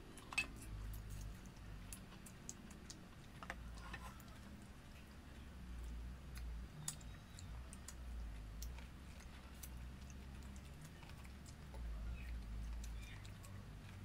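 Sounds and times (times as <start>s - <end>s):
low steady hum: 0.0s - 14.0s
person chewing food: 0.0s - 14.0s.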